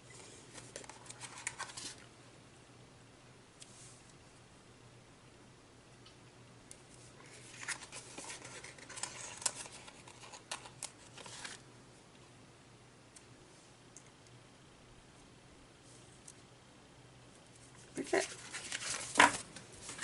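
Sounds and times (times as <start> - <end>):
paper rustling: 0.1 - 2.1, 7.2 - 11.6, 17.8 - 20.0.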